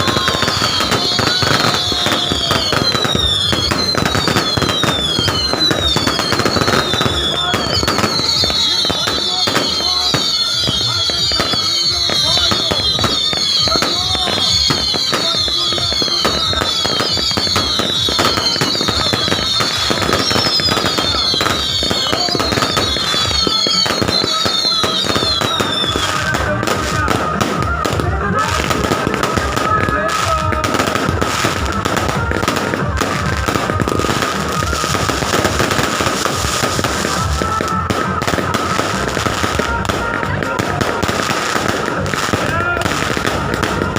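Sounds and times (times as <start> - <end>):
falling firework whistles: 0.0 - 27.1
fireworks bangs and crackling: 0.0 - 43.9.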